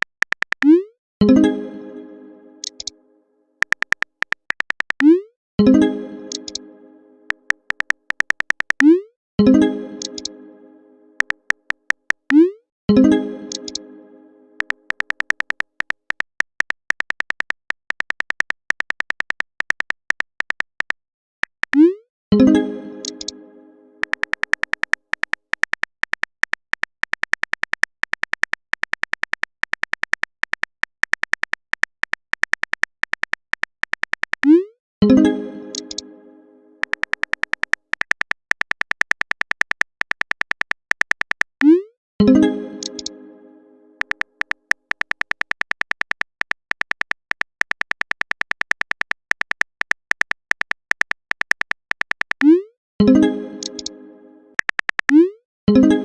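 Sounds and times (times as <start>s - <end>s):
keyboard typing ticks: 0.0s - 1.4s, 2.6s - 2.9s, 3.6s - 6.6s, 7.3s - 9.1s, 10.0s - 10.3s, 11.2s - 12.6s, 13.5s - 13.8s, 14.6s - 22.0s, 23.0s - 23.4s, 24.0s - 36.1s, 36.8s - 41.9s, 42.8s - 43.1s, 44.0s - 52.7s, 53.6s - 54.0s, 54.6s - 55.4s.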